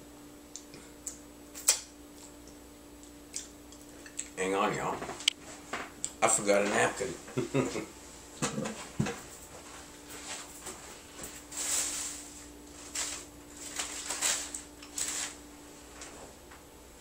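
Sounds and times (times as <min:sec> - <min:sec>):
faint steady hum: 0:00.0 - 0:17.0
rustling and handling noises: 0:04.8 - 0:16.6.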